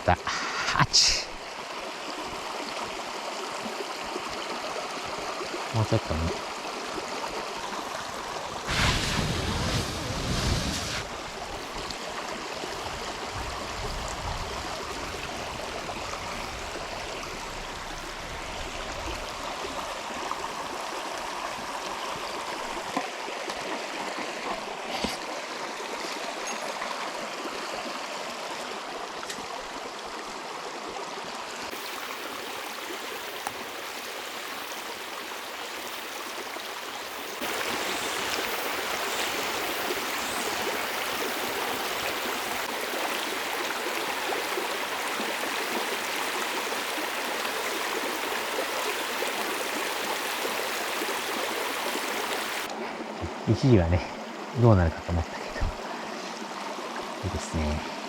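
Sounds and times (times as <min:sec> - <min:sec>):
river water rushing: 0:00.0 - 0:53.2.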